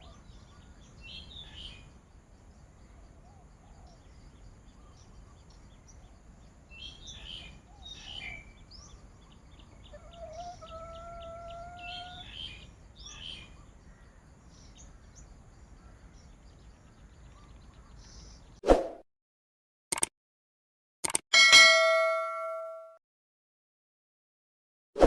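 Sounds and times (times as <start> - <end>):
birds chirping: 0.0 - 18.6.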